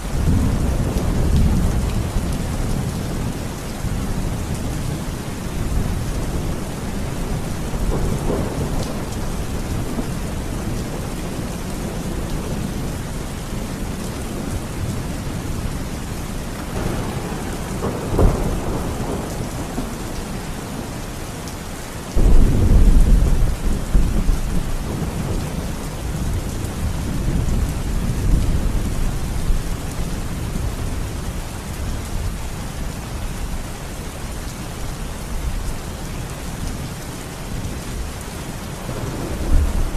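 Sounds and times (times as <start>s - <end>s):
steady rain: 0.0s - 39.9s
rolling thunder: 16.7s - 21.0s, 22.2s - 31.0s, 38.8s - 39.9s.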